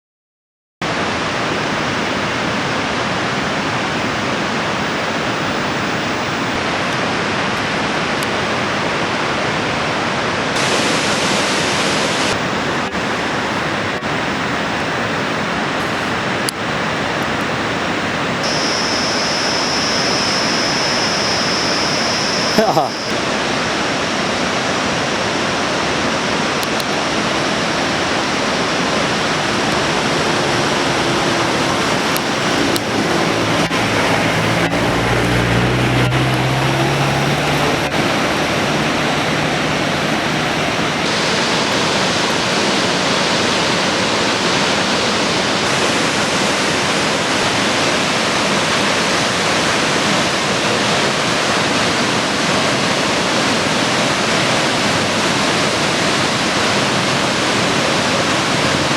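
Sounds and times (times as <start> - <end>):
waterfall rushing: 0.9 - 58.9
low droning tone: 18.4 - 25.2, 26.7 - 41.1.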